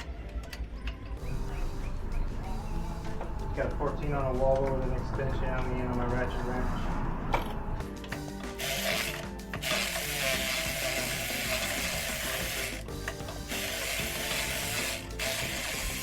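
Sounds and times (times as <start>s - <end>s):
ratchet wrench clicking: 8.1s - 16.0s.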